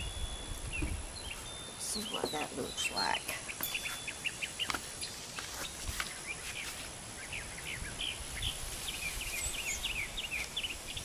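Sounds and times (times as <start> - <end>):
wind rumble on microphone: 0.0 - 1.4, 7.3 - 11.0
small birds chirping: 0.0 - 11.0.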